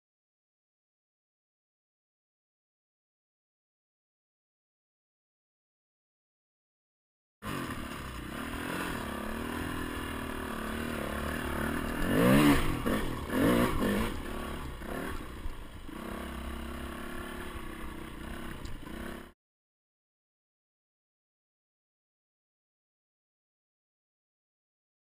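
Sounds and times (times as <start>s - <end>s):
motorbike engine revving and idling: 7.4s - 19.4s.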